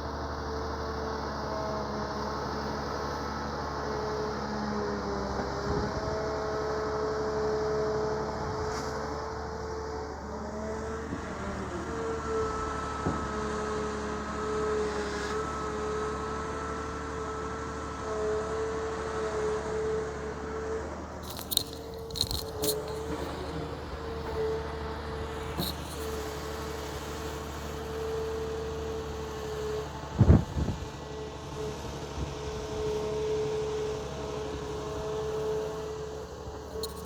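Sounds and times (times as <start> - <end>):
excavator engine whining: 0.1 - 37.0
bucket scraping through seaweed: 21.2 - 24.3, 25.5 - 26.3.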